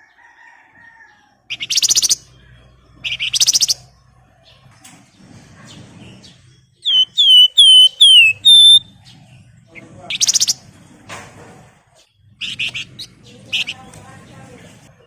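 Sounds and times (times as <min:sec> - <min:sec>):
songbird whistling: 0:01.5 - 0:02.3, 0:03.0 - 0:03.9, 0:06.8 - 0:08.9, 0:10.1 - 0:10.6
bird chattering notes: 0:01.5 - 0:03.9, 0:06.8 - 0:09.1, 0:09.8 - 0:10.6, 0:12.4 - 0:13.9
bird buzzy trill: 0:06.8 - 0:08.9.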